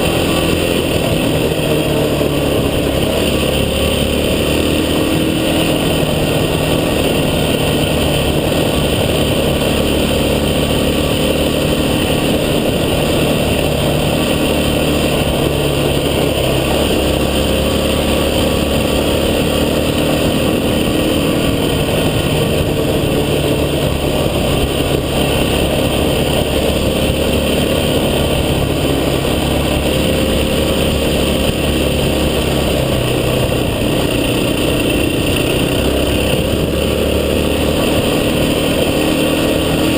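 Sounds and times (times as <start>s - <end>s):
off-road vehicle engine rumble: 0.0s - 39.9s.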